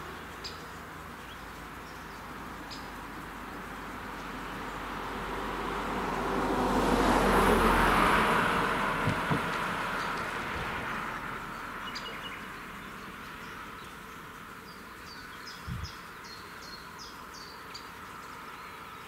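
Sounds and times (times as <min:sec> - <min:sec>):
vehicle passing by: 0:02.0 - 0:19.0
tyres thumping over rails: 0:09.0 - 0:09.6.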